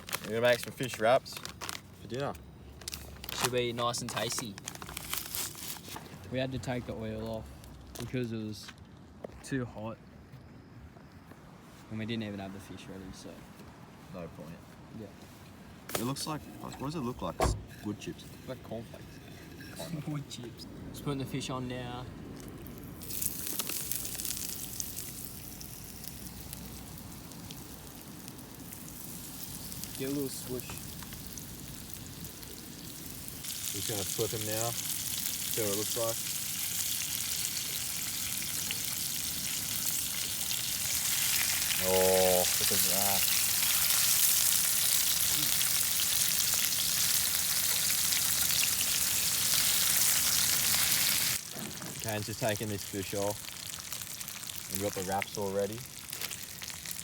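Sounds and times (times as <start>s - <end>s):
fish sizzling in hot oil: 22.7s - 57.0s.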